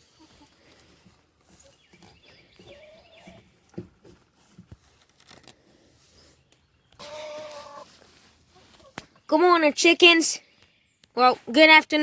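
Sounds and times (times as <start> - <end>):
chicken calling: 2.0 - 3.5, 6.9 - 9.0.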